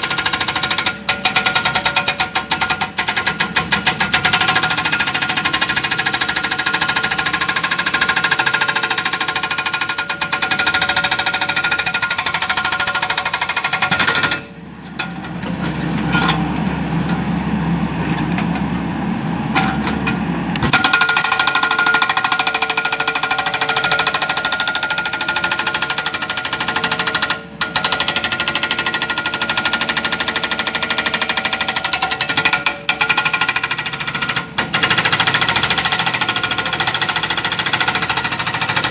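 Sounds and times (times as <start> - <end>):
hydraulic breaker hammering rock: 0.0 - 16.4, 19.6 - 38.9
excavator engine running: 0.0 - 38.9.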